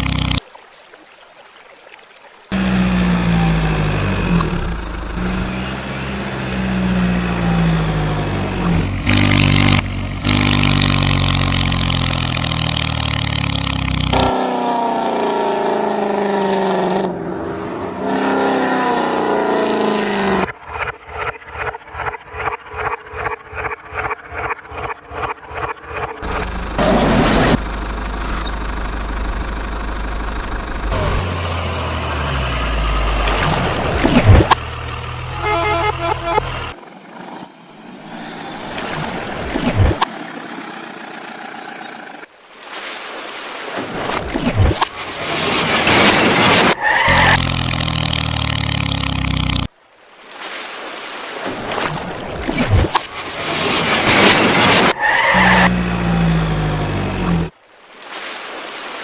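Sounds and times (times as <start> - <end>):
tyres skidding: 2.5 - 21.7, 25.8 - 42.2
vehicle engine idling: 2.6 - 8.6, 26.2 - 33.2.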